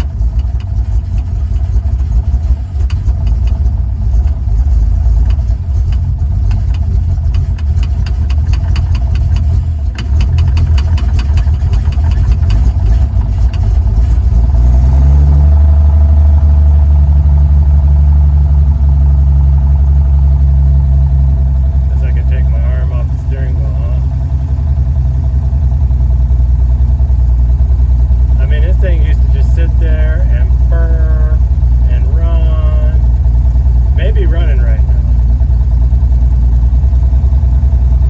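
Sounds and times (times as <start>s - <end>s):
engine running unevenly: 0.0s - 38.0s.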